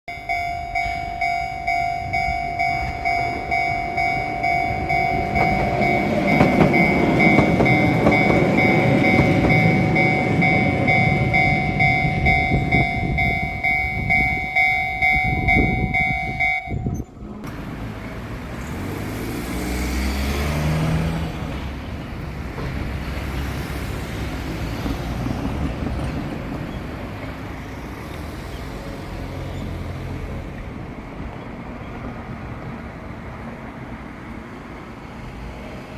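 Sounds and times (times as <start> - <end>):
level crossing alarm bell ringing: 0.1 - 17.0
electric train rumbling past: 0.1 - 35.9.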